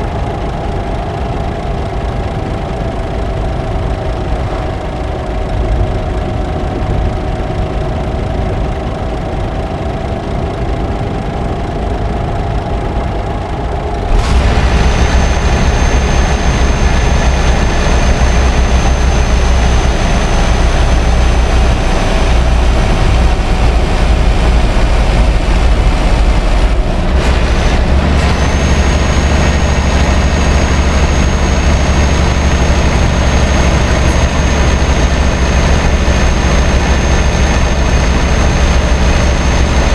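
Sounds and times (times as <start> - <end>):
truck diesel engine running: 10.3 - 39.9
thin high whine: 13.0 - 39.9.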